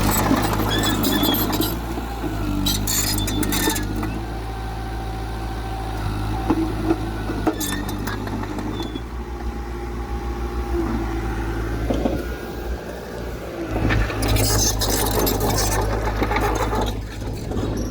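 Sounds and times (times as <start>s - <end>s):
heavy diesel engine running: 0.0s - 17.9s.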